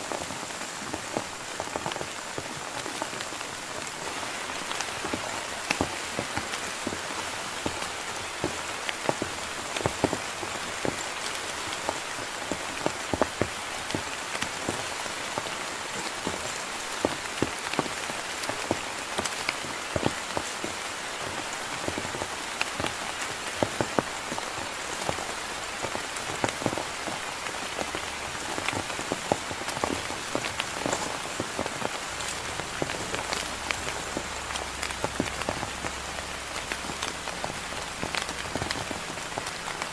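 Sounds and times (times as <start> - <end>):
heavy rain hiss: 0.0 - 39.9
raindrops striking a surface: 0.0 - 39.9.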